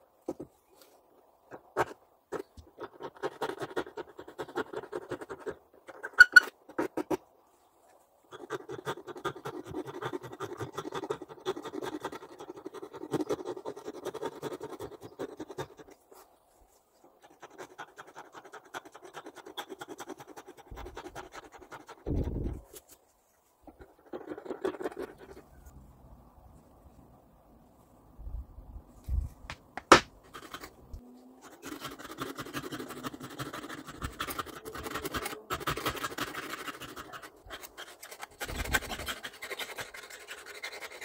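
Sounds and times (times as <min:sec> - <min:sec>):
fast scrubbing strokes by hand: 0:31.4 - 0:41.0.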